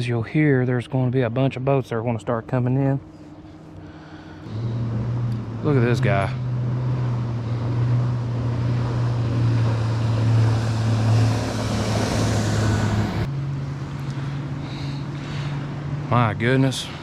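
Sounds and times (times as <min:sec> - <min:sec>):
outboard motor running: 0:02.5 - 0:17.0
water rushing off boat hull: 0:06.4 - 0:13.3.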